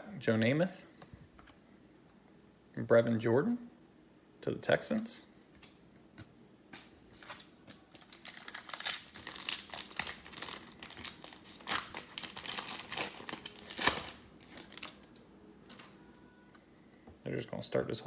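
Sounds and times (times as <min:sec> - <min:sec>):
plastic wrapper crinkling and tearing: 0:07.1 - 0:15.9.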